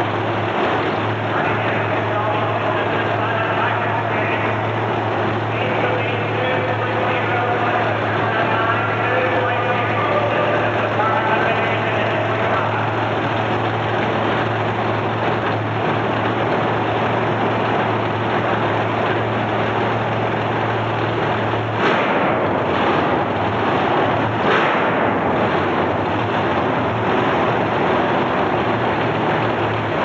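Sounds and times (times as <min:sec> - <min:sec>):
loud distorted truck engine: 0:00.0 - 0:30.0.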